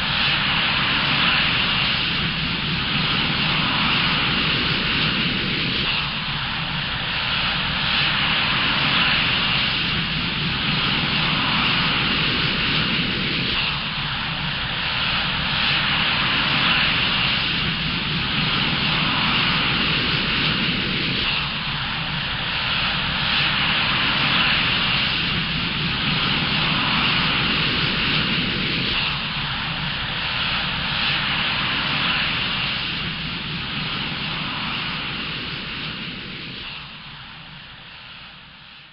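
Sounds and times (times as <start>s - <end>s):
jet engine whine: 0.0s - 38.9s.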